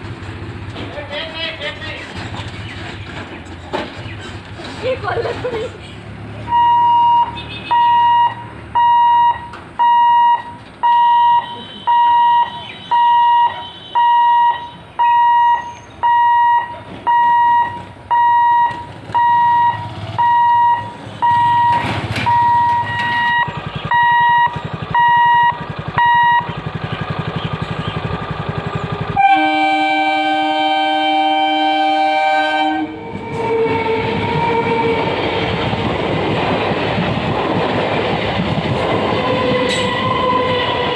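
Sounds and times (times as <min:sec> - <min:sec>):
train running noise: 0:00.0 - 0:40.9
level crossing warning beeper: 0:06.4 - 0:26.7
train horn blast: 0:29.2 - 0:35.4, 0:39.2 - 0:40.9.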